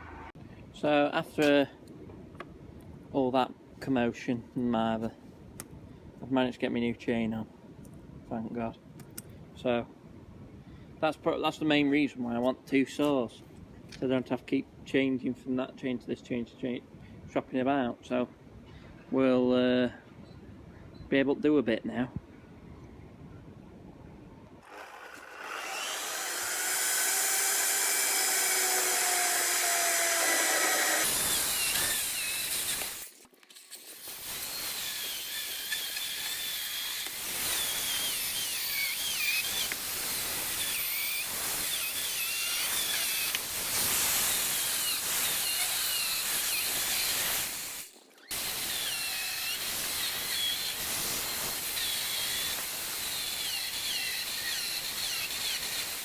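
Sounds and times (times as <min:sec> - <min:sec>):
chainsaw cutting through logs: 0:24.6 - 0:33.2, 0:33.8 - 0:56.0.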